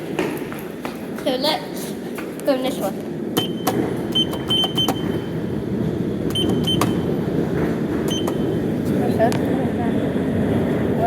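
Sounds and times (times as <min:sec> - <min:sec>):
lift running with rumble: 0:02.5 - 0:11.0
short high beeps: 0:08.1 - 0:08.6.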